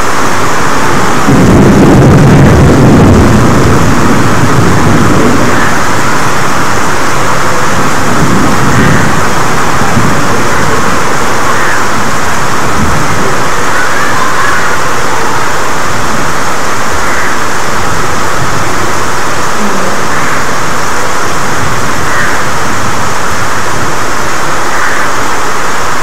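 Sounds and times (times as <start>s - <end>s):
heavy rain falling: 0.0s - 26.0s
thunder rumbling: 0.0s - 26.0s.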